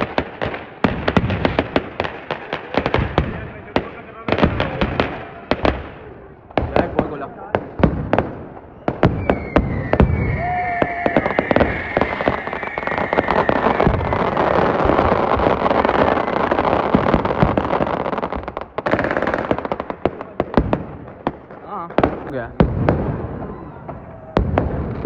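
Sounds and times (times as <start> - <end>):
firecracker bangs crackling: 0.0 - 23.6
high firework whistle: 8.6 - 15.2.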